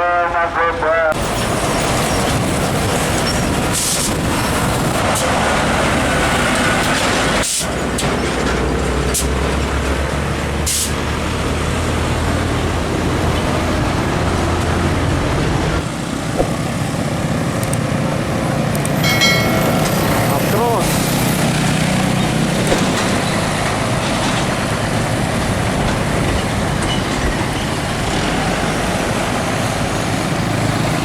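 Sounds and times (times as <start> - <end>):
diesel engine drone: 0.0 - 31.0
road and tyre noise: 0.0 - 31.0
sharp hisses: 10.7 - 11.0.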